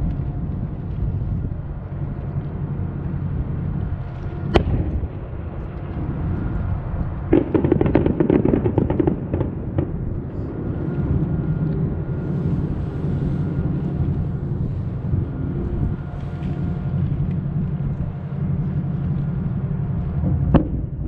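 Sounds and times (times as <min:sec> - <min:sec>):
low rumble: 0:00.0 - 0:21.0
crackling firework pops: 0:03.8 - 0:11.3, 0:20.1 - 0:21.0
firework bang: 0:04.5 - 0:05.6, 0:07.3 - 0:10.5, 0:20.2 - 0:21.0.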